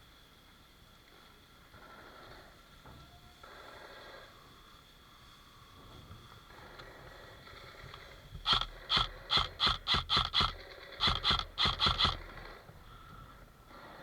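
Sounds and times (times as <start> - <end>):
airsoft rifle shots: 8.5 - 12.6.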